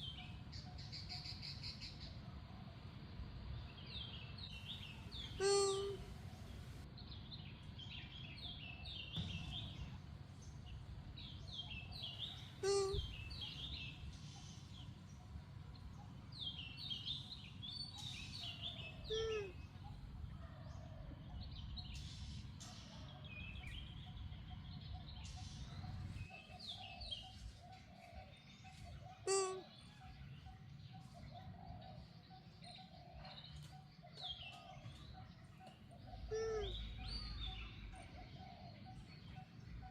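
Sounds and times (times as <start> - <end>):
low outdoor rumble: 0.0 - 39.9
small birds chirping: 0.0 - 39.9
loud single bird calls: 5.1 - 6.4, 12.4 - 13.4, 19.0 - 19.6, 29.1 - 30.0, 36.3 - 37.5.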